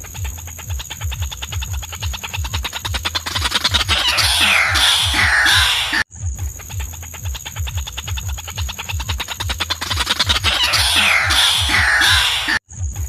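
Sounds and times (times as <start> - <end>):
waterhen calls: 2.5 - 6.0, 9.2 - 12.6.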